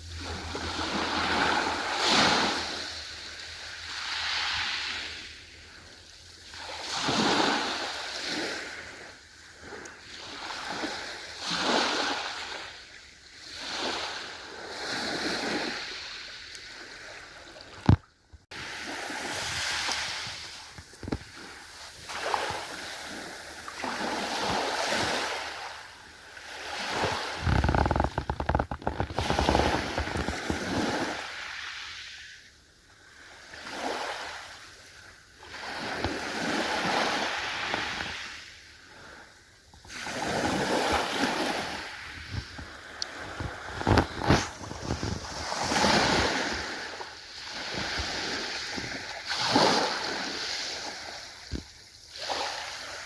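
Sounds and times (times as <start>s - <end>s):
ocean waves breaking: 0.0s - 17.9s, 18.5s - 32.1s, 35.4s - 39.2s, 39.9s - 53.0s
splashing crackles: 27.4s - 30.6s.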